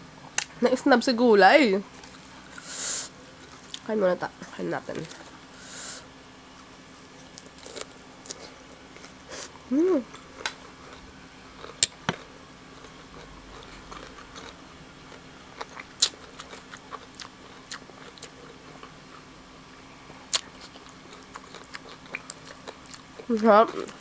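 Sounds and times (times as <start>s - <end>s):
person chewing noodles: 7.3s - 18.9s, 20.3s - 24.0s.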